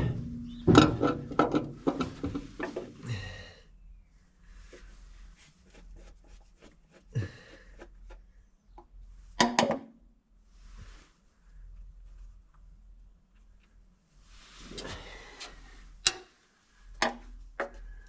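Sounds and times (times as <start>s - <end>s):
loud metal clanks: 0.0s - 2.8s
hand tools knocking on metal: 0.0s - 2.9s.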